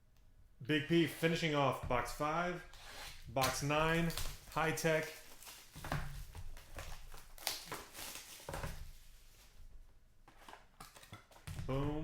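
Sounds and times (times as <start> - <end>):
packaging crinkling and rustling: 2.8 - 9.6, 10.3 - 11.6.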